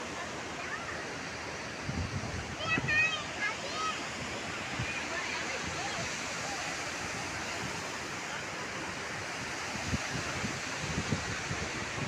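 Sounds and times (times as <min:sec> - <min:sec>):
waterfall rushing: 0:00.0 - 0:12.0
wind buffeting microphone: 0:01.7 - 0:03.5, 0:09.2 - 0:12.0.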